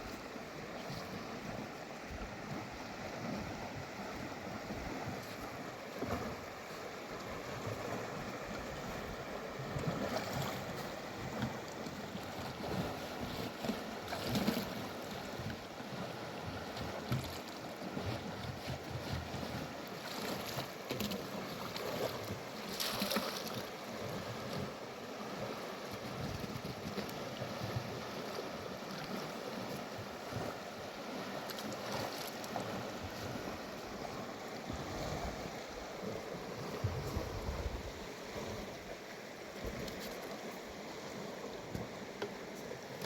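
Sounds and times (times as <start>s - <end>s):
wind buffeting on microphone: 33.1s - 38.8s.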